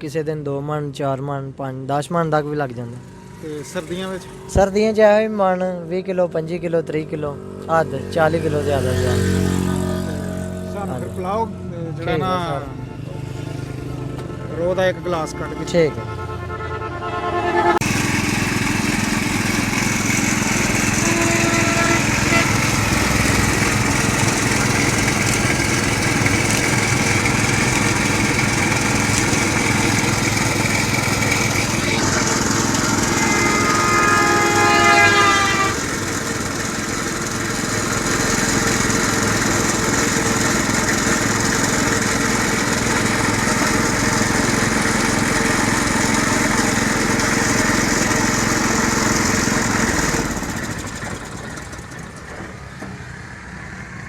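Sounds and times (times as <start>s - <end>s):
motor-driven juice crusher running: 3.0s - 4.7s, 17.8s - 53.6s
pitched squeal: 16.6s - 39.2s.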